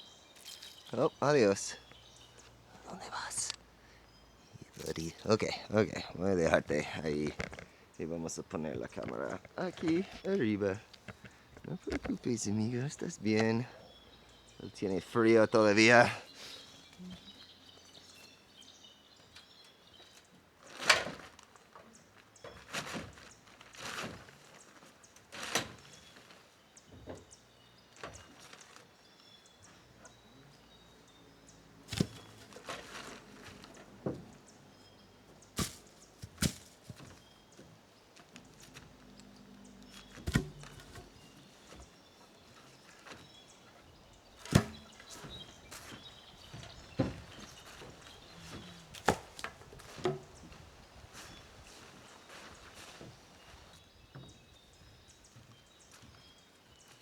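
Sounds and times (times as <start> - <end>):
faint bird chirps: 0.0 - 20.4, 24.4 - 57.0
thuds and scuffs on plank roof: 31.9 - 34.4, 35.6 - 37.2, 40.0 - 42.0, 44.4 - 54.4.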